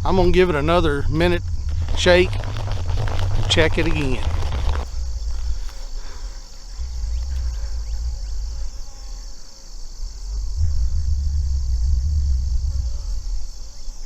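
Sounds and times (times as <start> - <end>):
low rumble: 0.0 - 6.0, 6.7 - 8.8, 10.0 - 14.0
summer insects chorus: 0.0 - 14.0.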